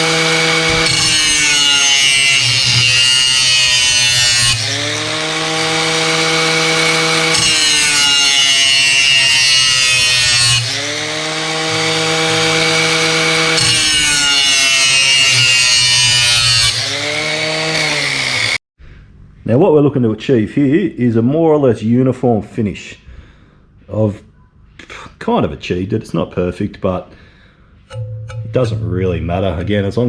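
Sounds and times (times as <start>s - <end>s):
angle grinder grinding steel: 0.0s - 18.6s, 27.9s - 29.8s.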